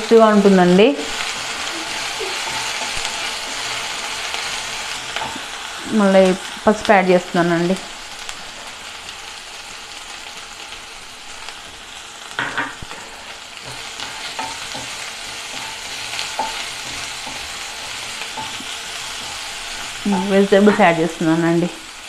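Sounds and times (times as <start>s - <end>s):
onions sizzling in a pan: 0.0s - 22.0s
spatula scraping a pan: 1.0s - 5.5s, 12.8s - 21.2s.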